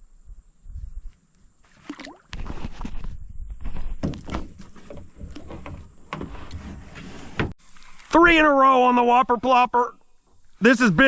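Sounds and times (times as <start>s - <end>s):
water splashing: 1.7s - 2.5s
hollow thunks on kayak hull: 3.9s - 6.3s.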